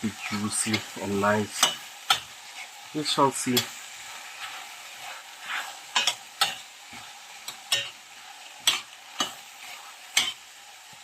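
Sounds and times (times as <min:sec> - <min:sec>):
vegetables sizzling in pan: 0:00.0 - 0:11.0
utensil scraping pan: 0:03.5 - 0:08.0, 0:08.6 - 0:10.4.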